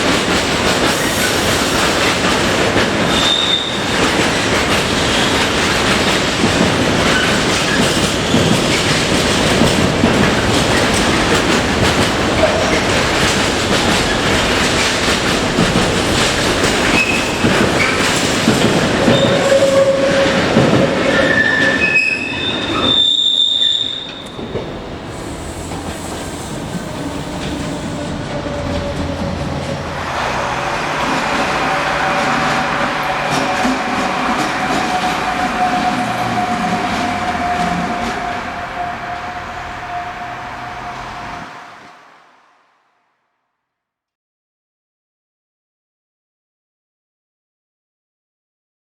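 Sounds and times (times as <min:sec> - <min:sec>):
train wheels rumbling on rails: 0:00.0 - 0:42.3
wheel squeals: 0:01.0 - 0:04.1, 0:16.7 - 0:29.4, 0:30.8 - 0:41.8.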